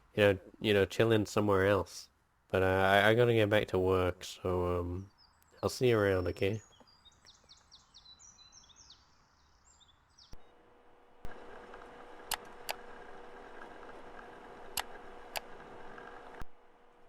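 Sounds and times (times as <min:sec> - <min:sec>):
birds chirping: 0:03.3 - 0:10.6
computer hum: 0:10.3 - 0:17.0
sharp clicks: 0:11.2 - 0:12.9, 0:13.6 - 0:16.5.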